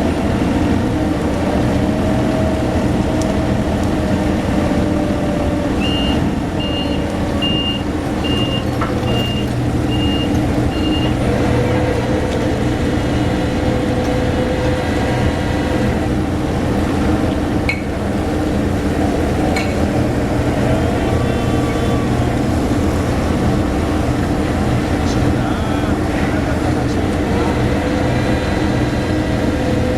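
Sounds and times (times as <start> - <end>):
heavy machinery engines running: 0.0 - 29.9
vehicle warning beeper: 5.8 - 11.2.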